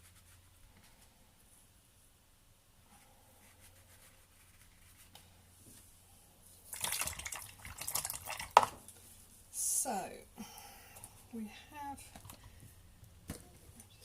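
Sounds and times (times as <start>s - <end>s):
paintbrush rinsed in water pot: 6.7s - 8.7s.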